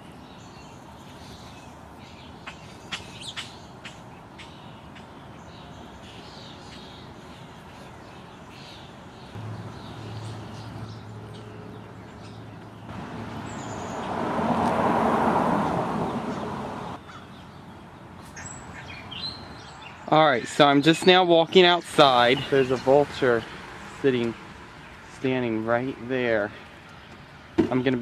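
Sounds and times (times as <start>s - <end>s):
vehicle passing by: 9.3s - 17.2s, 21.9s - 26.5s.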